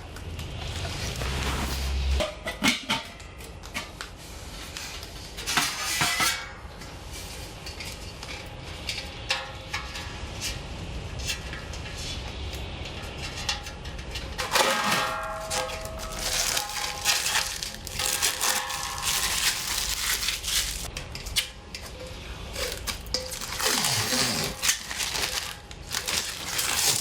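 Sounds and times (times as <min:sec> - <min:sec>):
packaging rustling: 0:15.6 - 0:20.9, 0:22.6 - 0:27.0.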